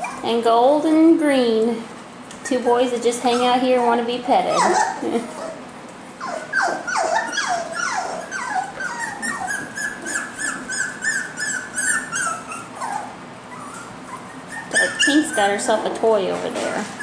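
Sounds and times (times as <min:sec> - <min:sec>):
puppies yipping: 0:00.0 - 0:00.3, 0:03.2 - 0:15.8
puppies whimpering: 0:00.0 - 0:00.4, 0:03.2 - 0:16.2.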